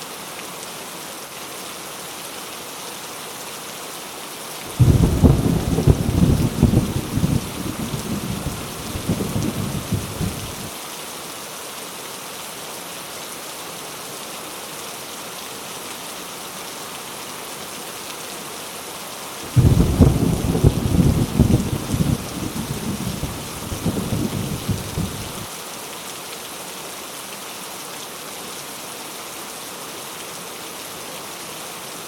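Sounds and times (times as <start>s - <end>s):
heavy rain falling: 0.0s - 32.0s
thunder rumbling: 4.7s - 10.7s, 19.5s - 25.5s.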